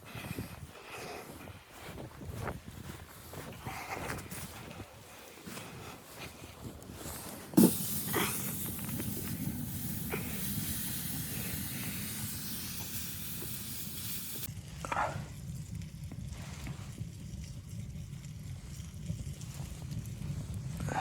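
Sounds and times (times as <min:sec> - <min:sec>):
steady hiss: 0:07.6 - 0:14.5.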